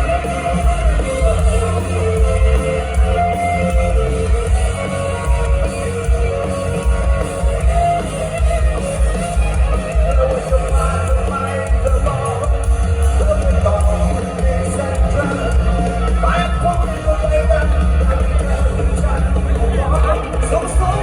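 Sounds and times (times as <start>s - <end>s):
live rock band music: 0.0s - 21.0s.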